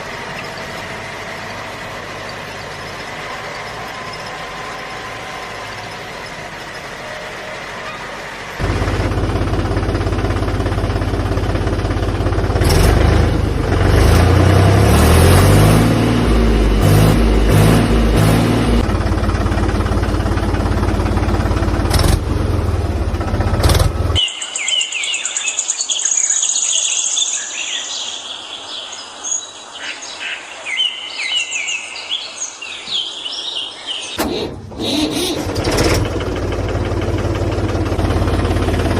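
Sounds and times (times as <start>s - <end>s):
birds chirping: 0.0s - 8.8s, 24.1s - 34.2s
low engine-like rumble: 16.1s - 24.2s.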